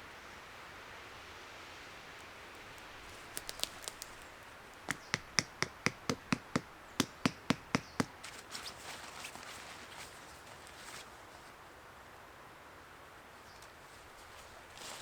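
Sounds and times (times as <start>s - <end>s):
soft rustling: 2.6s - 4.8s, 8.2s - 11.6s, 13.6s - 15.0s
sharp knocks: 4.9s - 8.2s.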